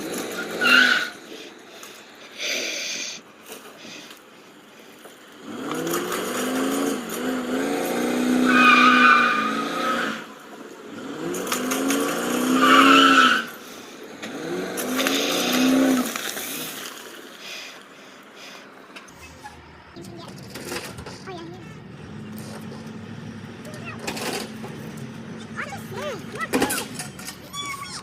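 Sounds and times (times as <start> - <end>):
vehicle engine revving: 0.0 - 1.3, 5.1 - 17.3, 19.0 - 28.0
tyres squealing: 0.0 - 1.6, 5.8 - 10.4, 11.4 - 13.6, 18.6 - 28.0.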